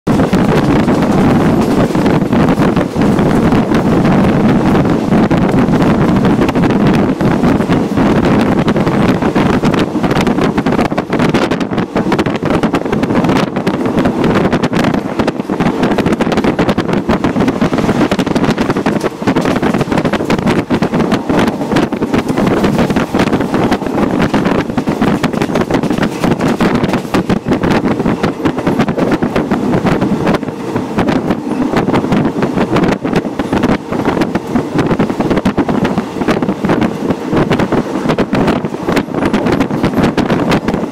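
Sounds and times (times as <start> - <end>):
train running on track: 0.0 - 40.9
wind rushing over microphone: 0.0 - 40.9.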